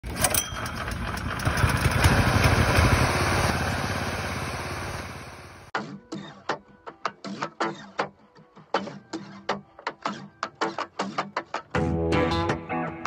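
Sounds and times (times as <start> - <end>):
petrol mower engine running: 0.0 - 5.7.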